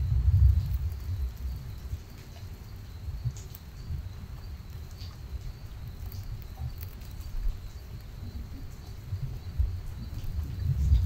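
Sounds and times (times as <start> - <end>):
low rumble: 0.0 - 2.2
cricket trill: 0.0 - 11.0
light rain pattering: 0.0 - 11.0.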